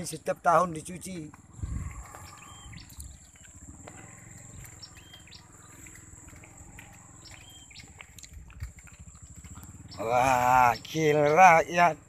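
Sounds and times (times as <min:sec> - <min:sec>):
footsteps on dirt track: 0:00.0 - 0:12.0
low rumble: 0:01.4 - 0:10.0
bird calling: 0:01.4 - 0:12.0.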